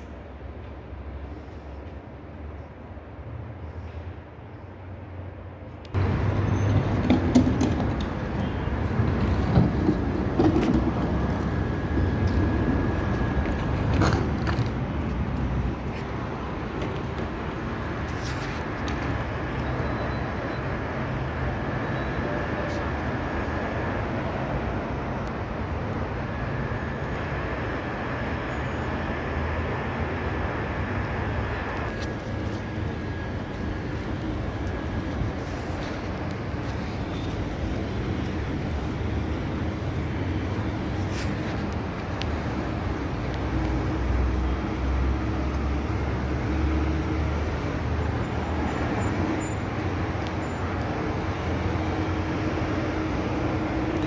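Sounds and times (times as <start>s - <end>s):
train rumbling: 0.0s - 54.0s
thin high whine: 17.3s - 54.0s.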